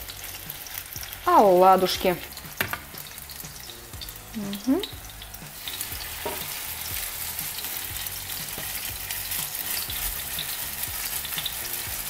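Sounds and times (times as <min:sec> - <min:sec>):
batter frying in hot oil: 0:00.0 - 0:12.0.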